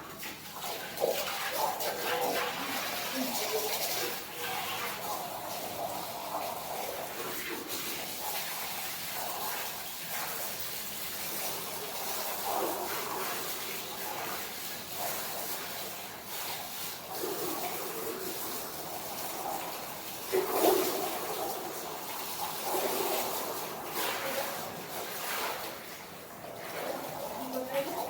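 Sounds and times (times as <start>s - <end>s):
milk hissing into a pail: 0.0s - 28.0s.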